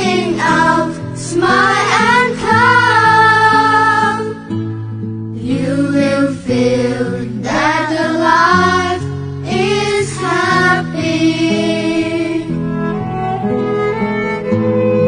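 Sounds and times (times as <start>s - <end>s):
person singing: 5.4s - 12.6s.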